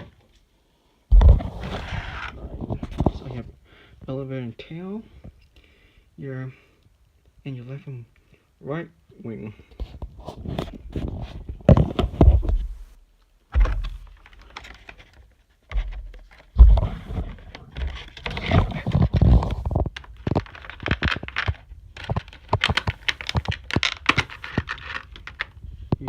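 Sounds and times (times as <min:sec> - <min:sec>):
packaging clicks knocks and scrapes: 0:13.6 - 0:26.0.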